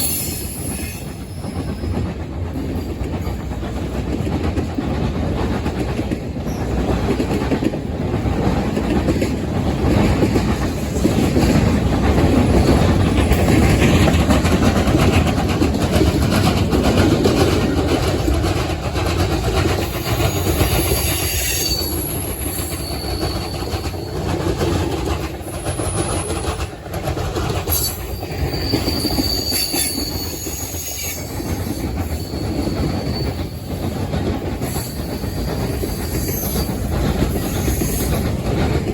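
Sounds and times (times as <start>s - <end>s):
freight train rumbling on rails: 0.0s - 38.9s
high-pitched wheel squeals: 20.3s - 24.2s, 27.7s - 33.6s.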